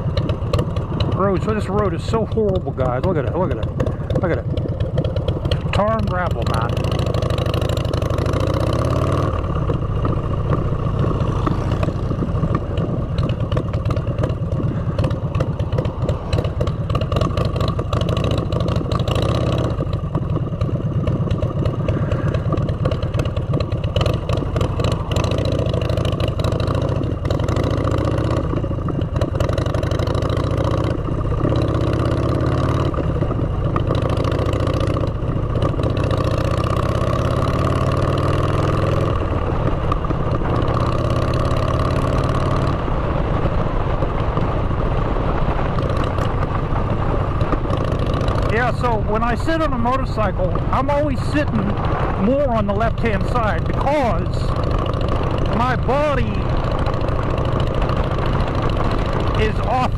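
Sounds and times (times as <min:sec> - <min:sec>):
clattering and buffeting: 0:00.0 - 0:59.9
motorcycle engine running: 0:00.0 - 0:59.9.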